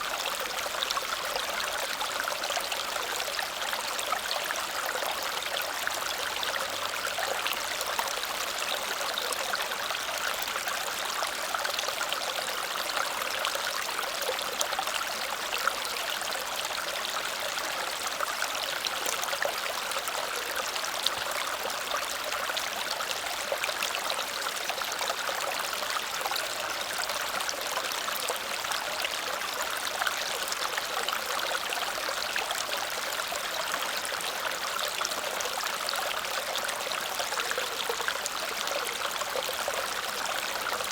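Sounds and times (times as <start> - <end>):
small waterfall splashing over rocks: 0.0 - 40.9.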